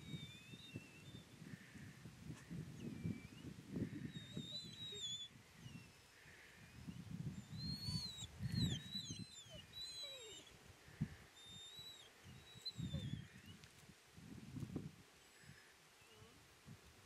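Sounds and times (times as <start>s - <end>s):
small birds whistling: 0.0s - 1.3s, 2.6s - 10.5s, 11.4s - 13.6s.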